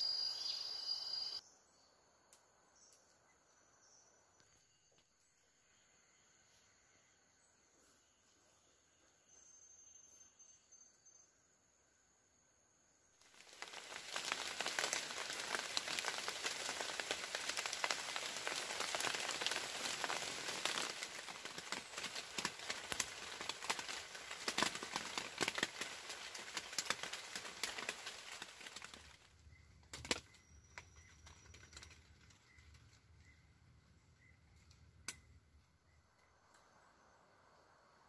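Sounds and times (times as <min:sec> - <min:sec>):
rain crackling on thatch: 0:13.2 - 0:33.3.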